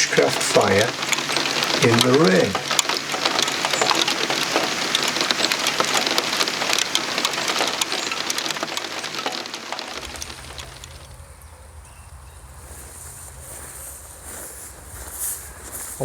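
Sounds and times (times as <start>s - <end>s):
heavy rain pattering: 0.0s - 11.2s.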